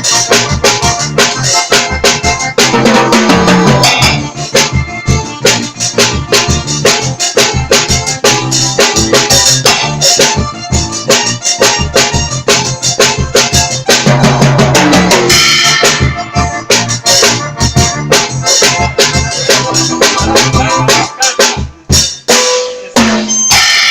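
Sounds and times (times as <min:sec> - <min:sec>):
bass notes: 0:00.0 - 0:21.9
drum kit groove: 0:00.0 - 0:23.9
keyboard notes: 0:00.0 - 0:23.9
cymbal burst: 0:23.5 - 0:23.9.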